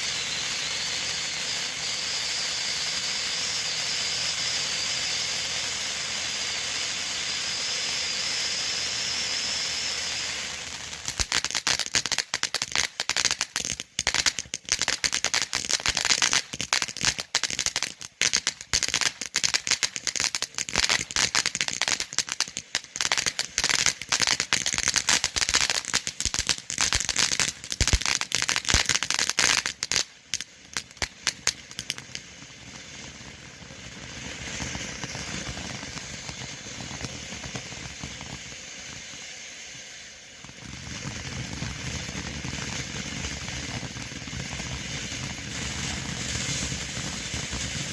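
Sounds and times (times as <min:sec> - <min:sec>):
firework fountain hissing: 0:00.0 - 0:47.9
crackling pops: 0:10.6 - 0:39.2.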